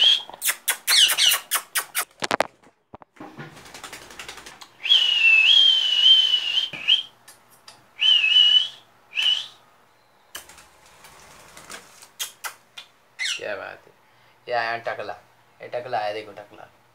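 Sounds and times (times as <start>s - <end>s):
short whistles: 0.0s - 2.1s, 4.8s - 7.2s, 8.0s - 9.6s
wavering whistle: 4.8s - 7.1s, 8.0s - 9.6s.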